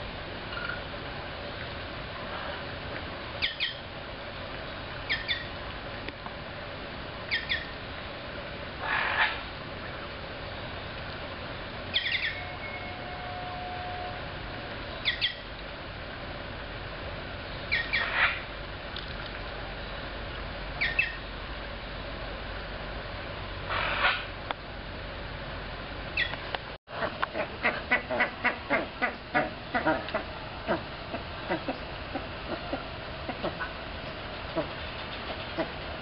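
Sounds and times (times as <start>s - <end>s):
bird chirping: 5.1s - 5.5s, 7.3s - 7.7s, 11.9s - 13.1s, 14.9s - 15.5s, 17.6s - 18.3s, 20.8s - 21.2s
harsh bird calls: 11.9s - 13.1s, 17.7s - 18.4s, 23.7s - 24.3s.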